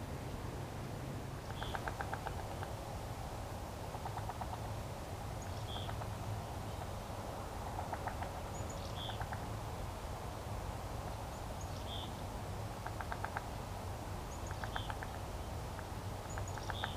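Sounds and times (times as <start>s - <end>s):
rapid clicking animal calls: 1.5s - 2.8s, 3.9s - 4.7s, 7.8s - 8.4s, 9.0s - 9.5s, 12.8s - 13.5s, 14.4s - 16.9s.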